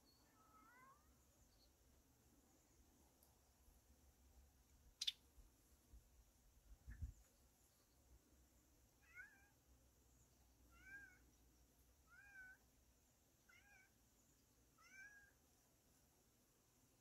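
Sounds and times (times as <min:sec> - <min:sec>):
cat meowing: 0:14.8 - 0:15.3.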